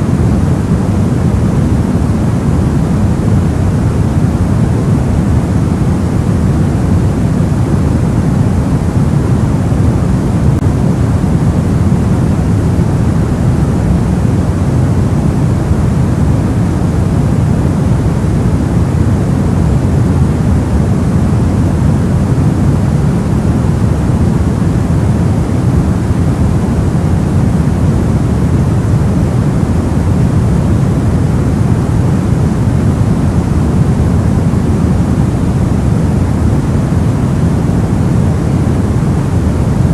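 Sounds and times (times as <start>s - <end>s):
soft low white noise: 0.0s - 39.9s.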